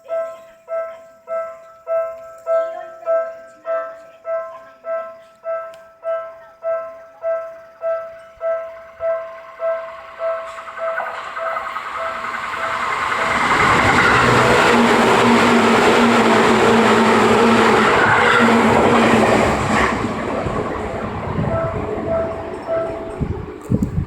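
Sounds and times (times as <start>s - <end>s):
level crossing bell ringing: 0.0s - 15.3s, 20.4s - 23.4s
electric train passing: 0.0s - 24.0s.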